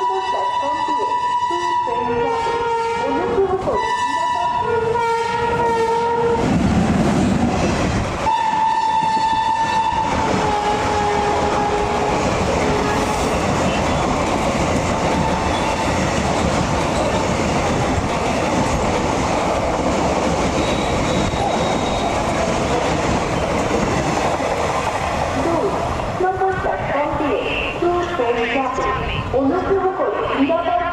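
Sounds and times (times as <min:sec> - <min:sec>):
train horn: 0:00.0 - 0:06.4, 0:08.2 - 0:14.0
train rushing and clattering: 0:00.0 - 0:30.9.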